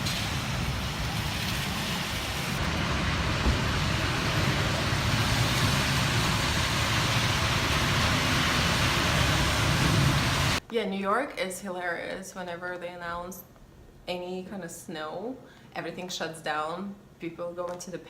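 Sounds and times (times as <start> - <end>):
road traffic rumble: 0.0 - 10.6.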